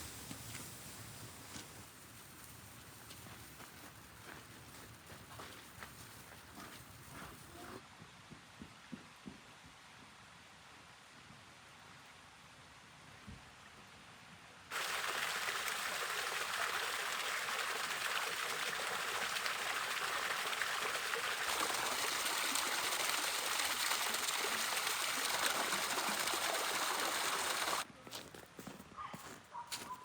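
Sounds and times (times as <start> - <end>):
rushing water: 14.7 - 27.9.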